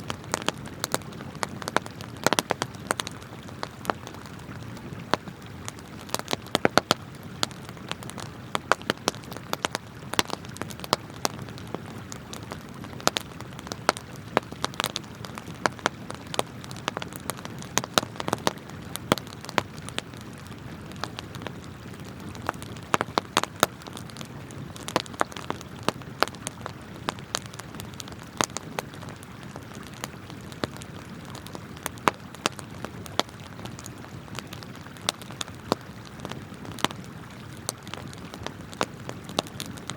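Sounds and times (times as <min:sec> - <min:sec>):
campfire crackling and popping: 0:00.0 - 0:39.9
flowing river water: 0:00.0 - 0:39.9.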